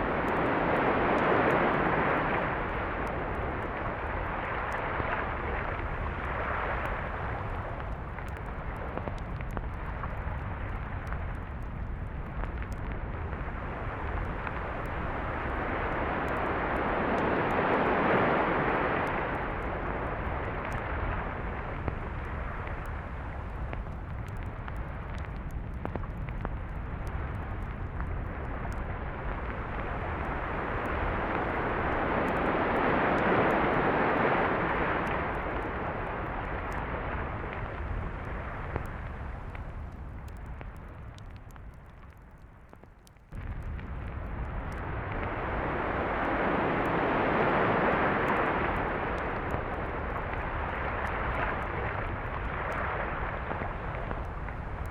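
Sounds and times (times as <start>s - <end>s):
waves breaking on a beach: 15.1s - 19.8s.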